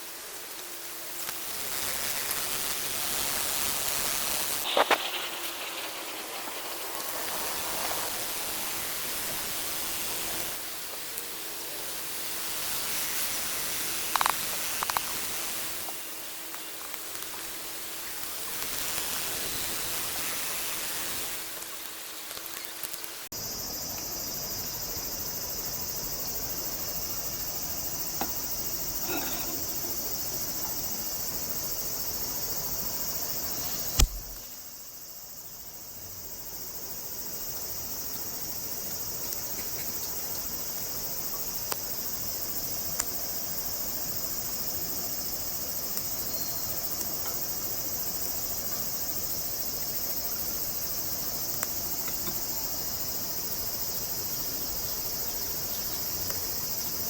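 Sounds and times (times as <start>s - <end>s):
high-pitched insect chorus: 0.0s - 57.0s
sharp knock: 34.0s - 34.4s.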